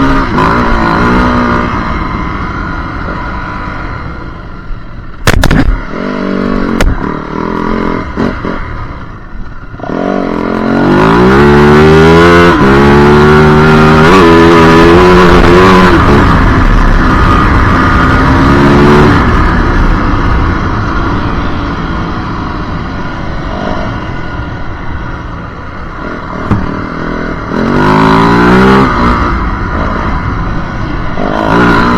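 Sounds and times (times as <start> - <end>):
sharp knocks: 26.4 - 26.8.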